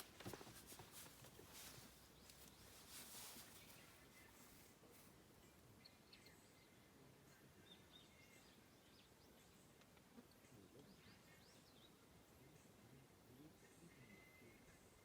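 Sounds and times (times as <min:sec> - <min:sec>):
faint high bird chirps: 0:10.4 - 0:15.0.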